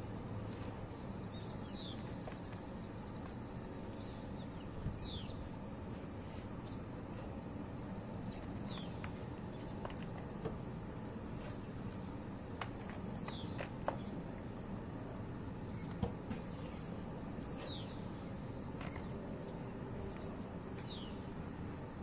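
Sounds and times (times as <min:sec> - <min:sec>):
outdoor background noise: 0:00.0 - 0:22.0
bird chirping: 0:00.5 - 0:05.5, 0:06.3 - 0:07.3, 0:08.1 - 0:10.2, 0:11.3 - 0:14.2, 0:15.6 - 0:21.4.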